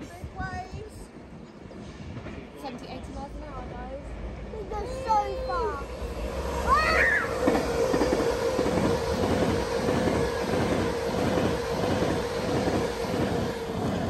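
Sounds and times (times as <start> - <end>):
steady whine: 4.7 - 14.0
train wheels clattering: 7.3 - 14.0.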